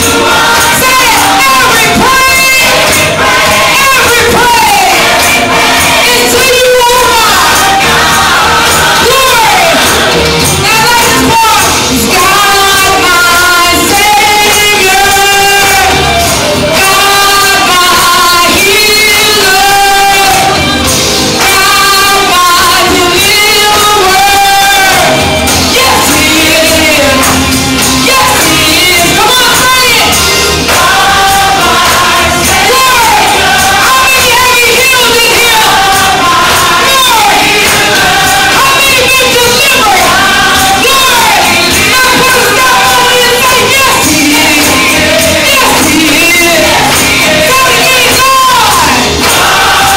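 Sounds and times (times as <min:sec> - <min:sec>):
instrumental backing: 0:00.0 - 0:49.9
voices singing held notes: 0:00.0 - 0:49.9.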